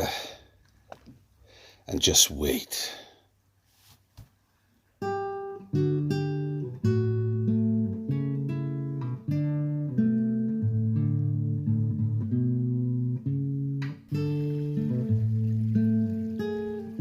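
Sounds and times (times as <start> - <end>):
acoustic guitar music: 5.0 - 17.0.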